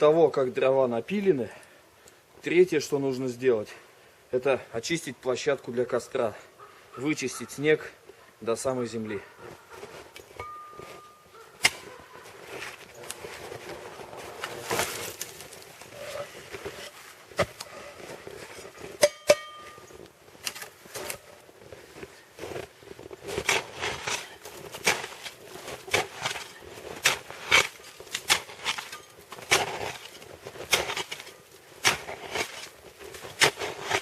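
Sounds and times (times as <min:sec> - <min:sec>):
shovel crunching and scraping snow: 0:09.4 - 0:34.0.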